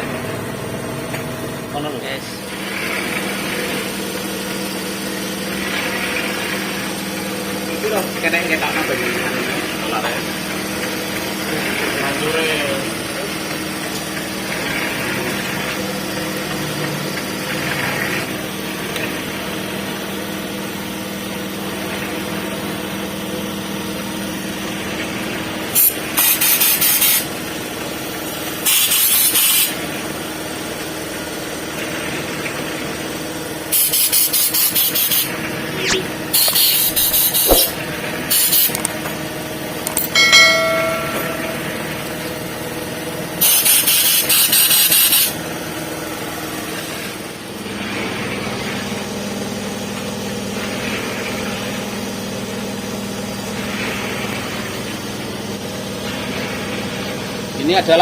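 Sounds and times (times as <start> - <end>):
concrete mixer engine running: 0.0 - 58.0
loud hiss bursts: 36.2 - 38.7
ringing metallic tone: 39.9 - 42.4.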